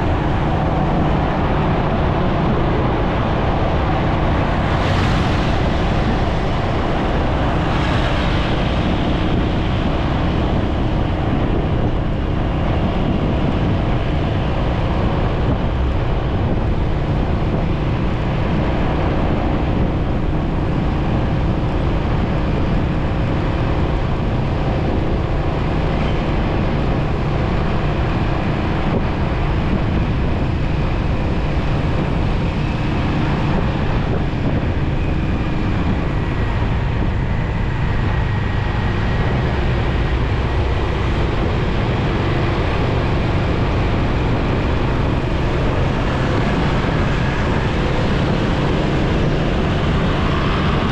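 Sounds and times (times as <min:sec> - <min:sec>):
road noise: 0:00.0 - 0:50.9
wind rushing over microphone: 0:00.0 - 0:50.9.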